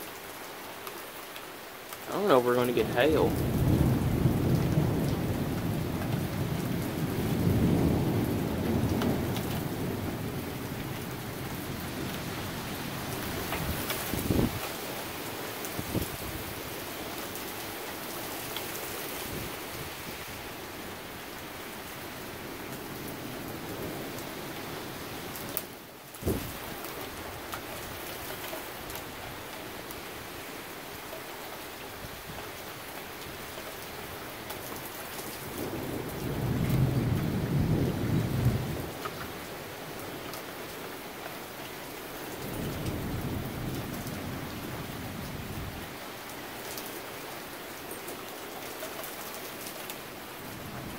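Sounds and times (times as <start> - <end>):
steady rain: 0.0 - 50.9
thunder rumbling: 2.8 - 12.2, 26.2 - 27.3, 35.5 - 39.0.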